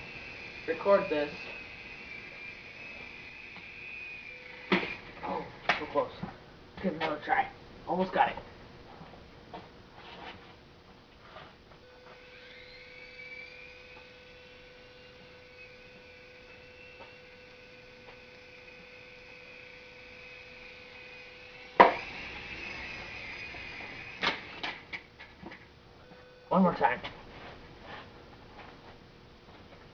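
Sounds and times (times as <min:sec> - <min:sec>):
toy helicopter motors whining: 0:00.0 - 0:06.3, 0:11.9 - 0:25.1.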